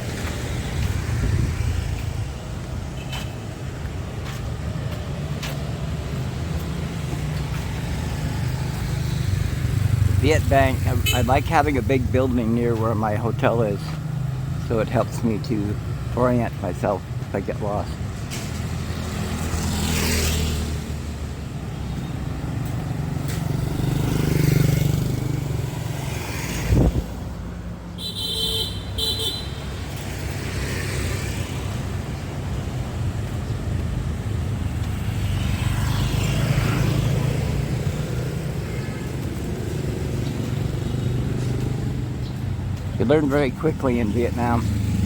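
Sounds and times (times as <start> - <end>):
motor vehicles passing: 0.0 - 45.0
short car horn beeps: 28.0 - 29.6.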